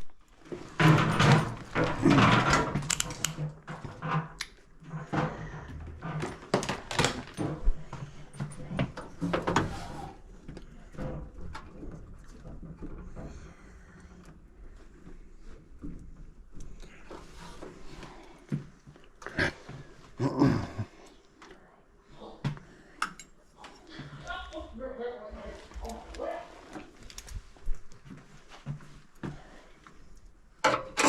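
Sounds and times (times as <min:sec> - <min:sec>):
knocking clatter and rattling: 0:00.0 - 0:19.0.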